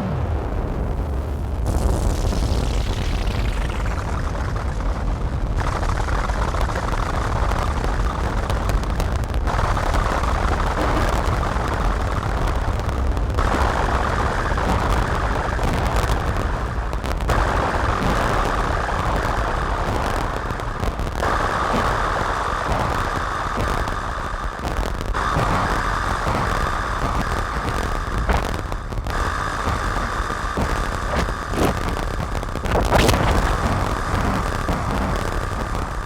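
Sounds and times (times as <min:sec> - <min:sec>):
distorted synthesizer noise drone: 0:00.0 - 0:36.0.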